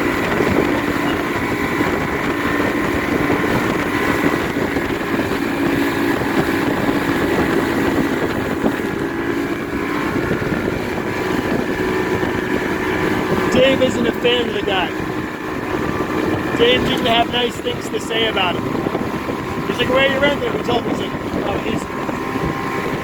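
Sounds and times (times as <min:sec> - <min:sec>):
motorboat engine drone: 0:00.0 - 0:23.0
water rushing noise: 0:00.0 - 0:23.0.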